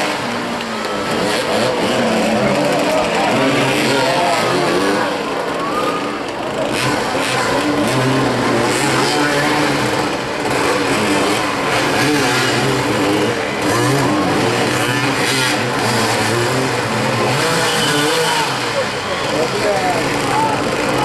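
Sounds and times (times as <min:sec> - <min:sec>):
motorcycle engines revving: 0:00.0 - 0:21.0.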